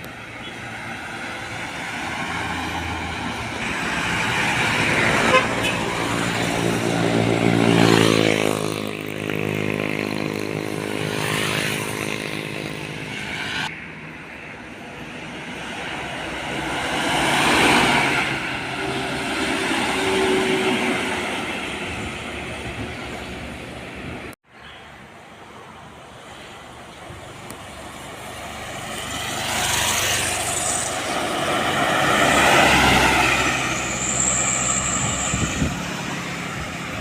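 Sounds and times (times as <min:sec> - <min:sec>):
heavy trucks passing: 0:00.0 - 0:37.0.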